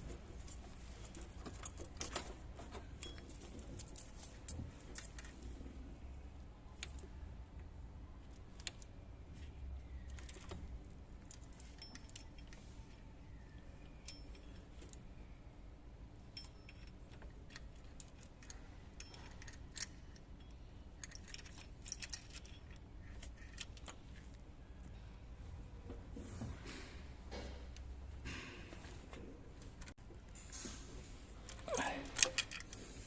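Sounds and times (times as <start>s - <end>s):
low steady hum: 0.0s - 33.0s
metal tools clinking: 11.3s - 15.0s, 16.3s - 24.2s.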